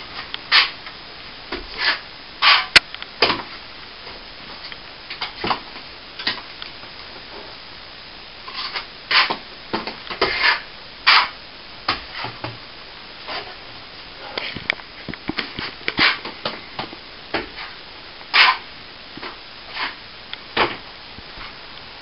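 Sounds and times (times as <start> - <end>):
plastering tool scraping render: 0.2 - 0.8, 1.6 - 2.8, 8.5 - 9.4, 10.1 - 11.4, 17.5 - 18.6, 19.7 - 20.0.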